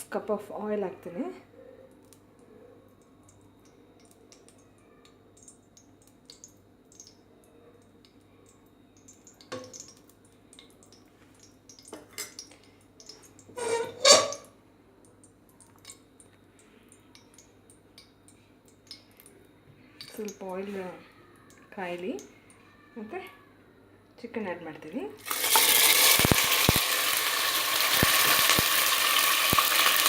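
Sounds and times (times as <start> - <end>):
pots and utensils clinking: 13.5 - 14.5, 25.3 - 30.0.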